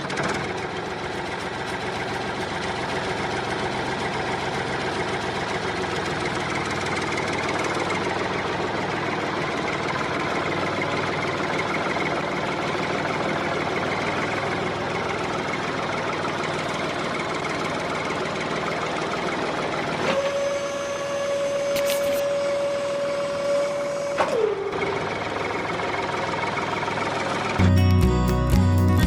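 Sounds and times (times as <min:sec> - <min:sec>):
small electric motors buzzing: 0:20.0 - 0:24.5.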